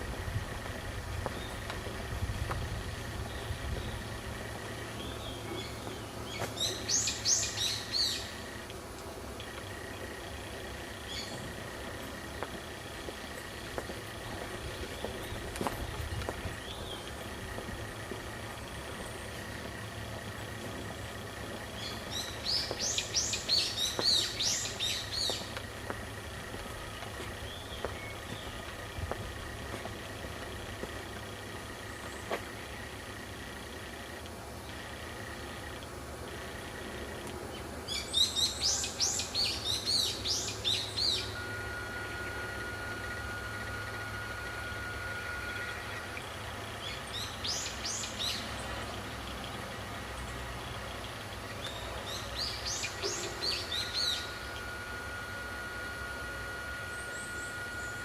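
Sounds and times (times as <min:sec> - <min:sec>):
songbird chirping: 0:00.0 - 0:58.0
steady low rumble: 0:00.0 - 0:58.0
songbird singing falling notes: 0:21.7 - 0:26.1, 0:51.1 - 0:54.8
thin high tone: 0:38.8 - 0:48.2, 0:52.0 - 0:58.0.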